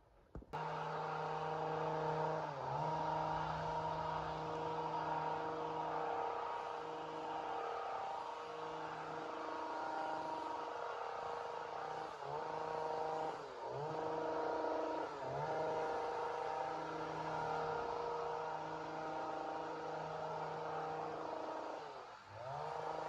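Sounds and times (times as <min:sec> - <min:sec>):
chainsaw running: 0:00.6 - 0:23.0.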